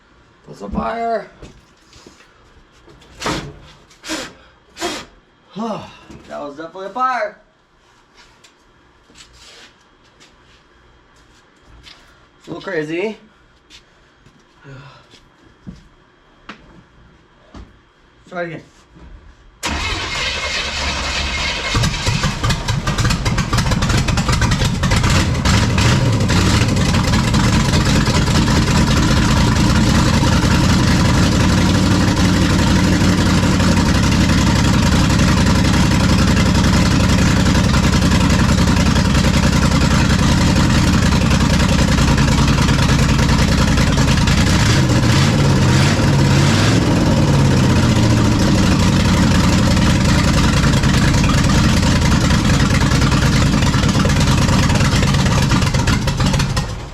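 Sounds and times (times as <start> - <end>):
loud engine running and revving: 21.7 - 56.7.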